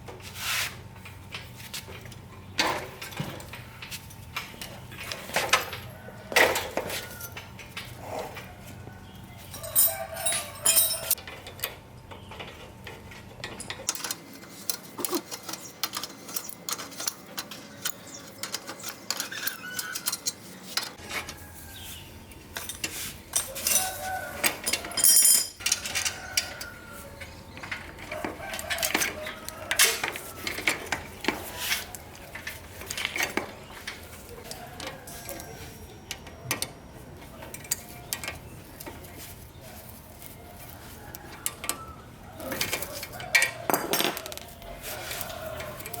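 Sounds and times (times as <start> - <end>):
metallic clinks of hand tools: 9.6 - 11.2, 24.6 - 26.6.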